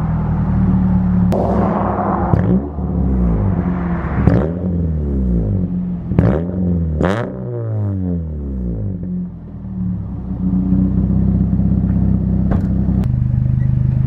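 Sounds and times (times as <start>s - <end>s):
car engine revving: 1.3s - 8.6s.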